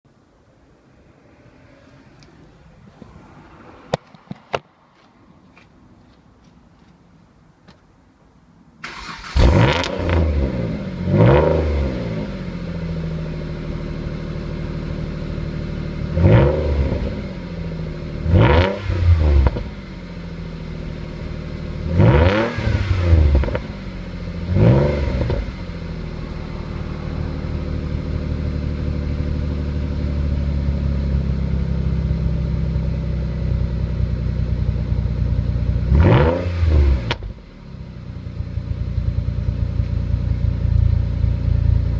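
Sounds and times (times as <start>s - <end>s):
car engine idling: 12.1s - 18.4s, 19.0s - 22.0s, 23.2s - 36.0s, 36.9s - 41.9s.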